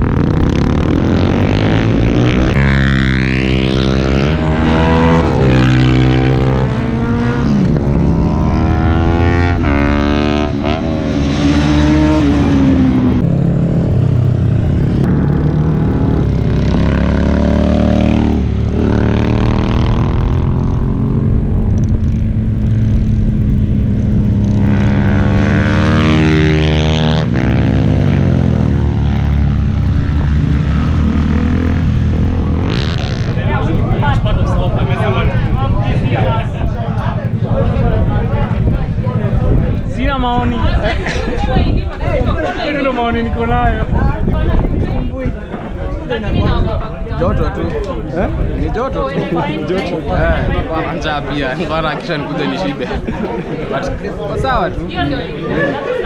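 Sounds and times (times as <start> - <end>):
motorbike engine accelerating: 0.0 - 45.8.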